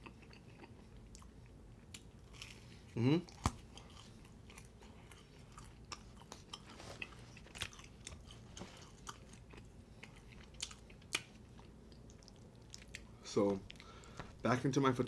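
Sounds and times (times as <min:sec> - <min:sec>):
person chewing food: 0:00.0 - 0:14.4.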